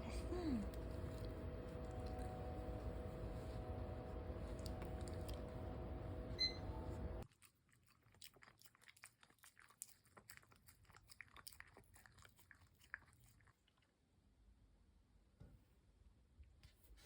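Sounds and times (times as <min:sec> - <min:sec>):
steady hum: 0:00.0 - 0:07.2
dog crunching food: 0:00.6 - 0:03.1, 0:04.2 - 0:06.0, 0:07.2 - 0:13.9.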